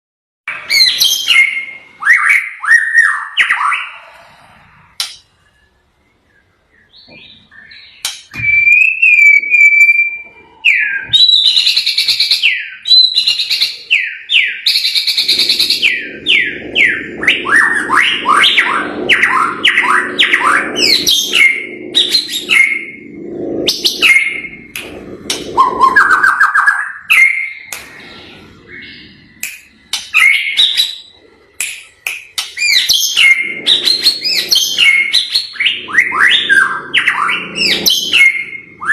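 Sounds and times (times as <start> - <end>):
songbird singing whistles and runs: 6.8 - 20.4
low steady hum: 15.2 - 38.9.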